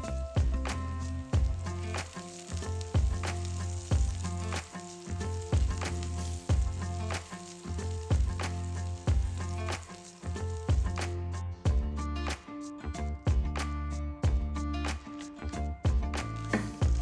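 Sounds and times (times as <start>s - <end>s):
food sizzling in a pan: 0.0s - 11.2s, 16.2s - 17.0s
music with beat and bass: 0.0s - 17.0s.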